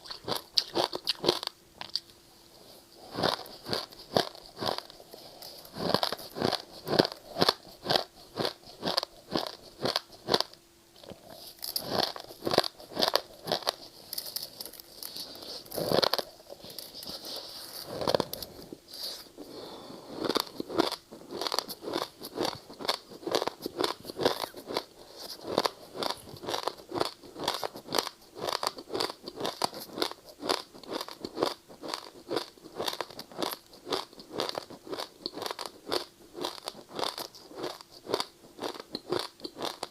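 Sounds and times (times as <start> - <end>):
ice being crunched and chewed: 0.0 - 2.1, 3.1 - 19.3, 20.1 - 39.9.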